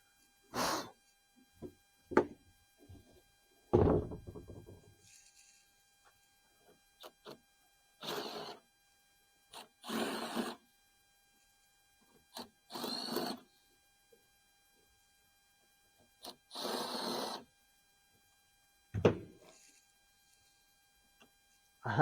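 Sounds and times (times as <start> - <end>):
electric drill bursts: 9.8 - 10.6, 12.7 - 13.4, 16.5 - 17.5.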